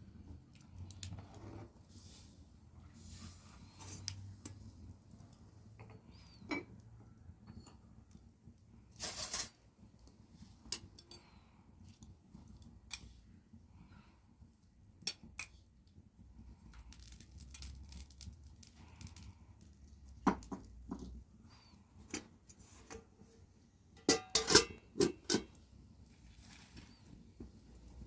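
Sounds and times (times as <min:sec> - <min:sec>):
kitchen things clicking and knocking: 0:22.0 - 0:25.6.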